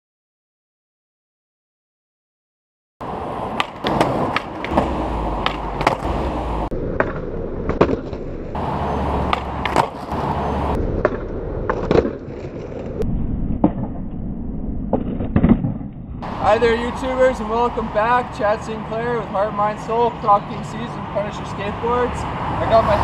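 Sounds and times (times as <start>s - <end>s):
skateboard wheels rolling on pavement: 3.0s - 23.0s
skateboard clacking on ground: 3.5s - 6.2s, 9.2s - 10.4s, 11.0s - 12.9s.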